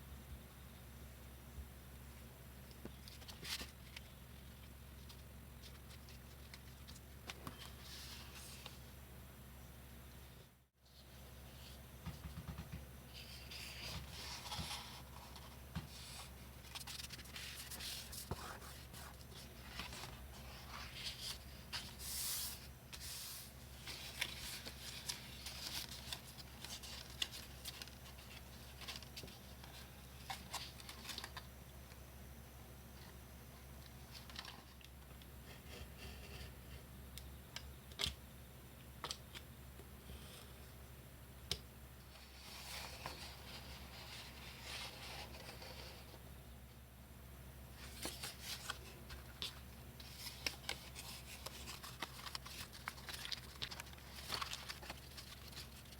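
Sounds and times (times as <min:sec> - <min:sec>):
paper rustling and scraping: 0:13.1 - 0:31.4, 0:47.8 - 0:55.9.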